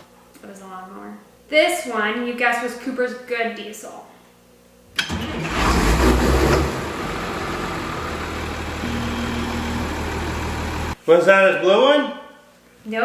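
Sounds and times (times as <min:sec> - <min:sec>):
tractor diesel engine starting: 0:05.0 - 0:11.0.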